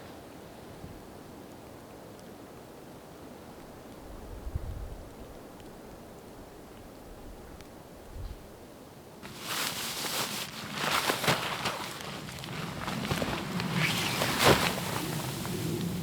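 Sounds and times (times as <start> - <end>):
footsteps crunching through snow: 9.2 - 16.0.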